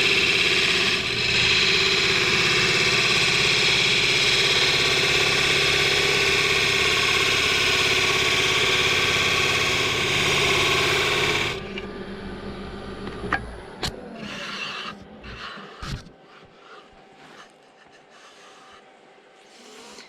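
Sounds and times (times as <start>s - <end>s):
wood lathe tool cutting chatter: 0.0s - 11.8s
lathe winding down: 0.0s - 15.8s.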